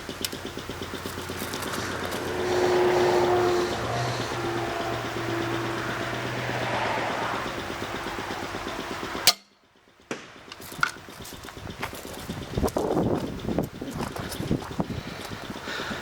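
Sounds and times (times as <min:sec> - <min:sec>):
low hum: 0:00.0 - 0:16.0
crossbow shot crack: 0:10.1 - 0:11.0.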